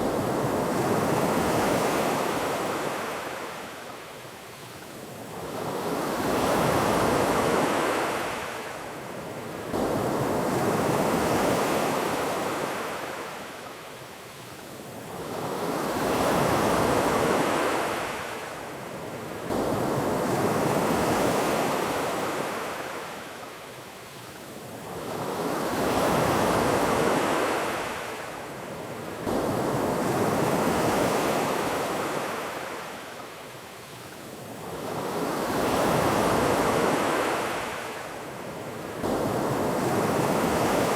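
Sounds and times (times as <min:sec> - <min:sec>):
ocean surf breaking on beach: 0:34.3 - 0:40.9.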